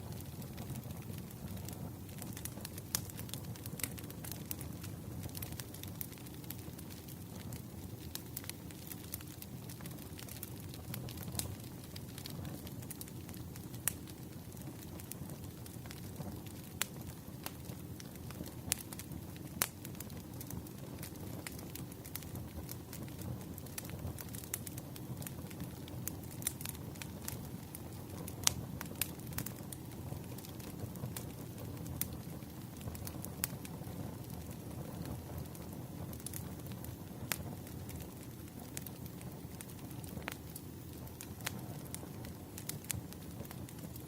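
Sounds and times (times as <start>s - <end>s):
low rumble of flames: 0.0s - 44.0s
wood fire crackling and popping: 0.0s - 44.0s.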